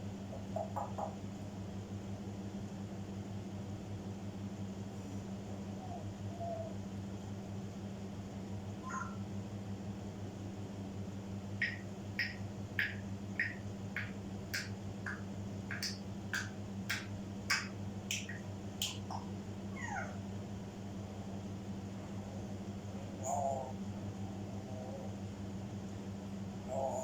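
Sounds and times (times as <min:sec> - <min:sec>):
parrot chirping: 0:08.8 - 0:09.2, 0:11.6 - 0:20.1
parrot warbling: 0:08.8 - 0:09.2, 0:19.7 - 0:20.2, 0:26.7 - 0:27.0
parrot whistling: 0:11.6 - 0:16.0.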